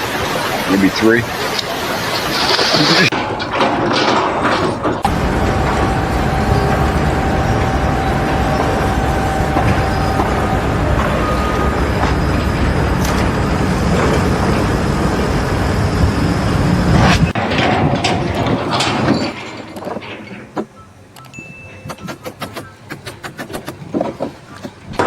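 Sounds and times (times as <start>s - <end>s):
thin steady whine: 0.0s - 18.1s
heavy vehicle engine running: 0.0s - 19.3s.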